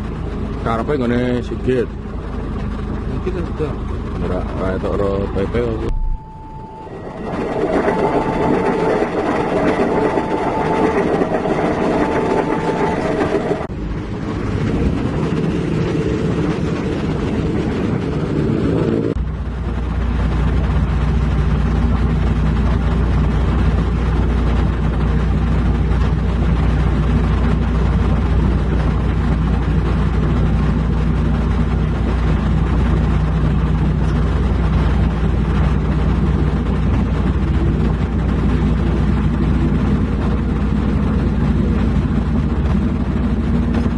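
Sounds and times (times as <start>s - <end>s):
heavy diesel engines droning: 0.0s - 43.9s.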